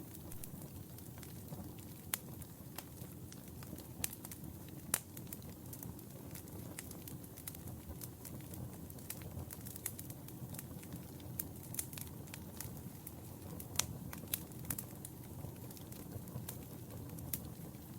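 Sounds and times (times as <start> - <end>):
wood fire crackling: 0.0 - 17.9
sharp pops and snaps: 0.2 - 0.6.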